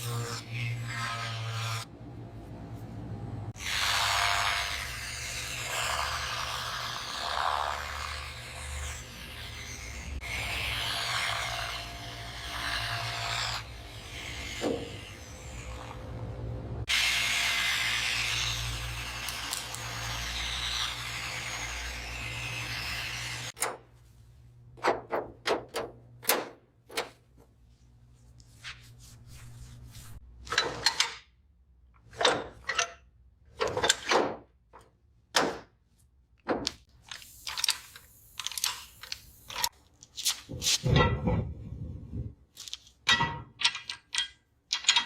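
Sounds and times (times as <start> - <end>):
knocks and clunks of handling: 36.4 - 36.9, 42.6 - 45.0.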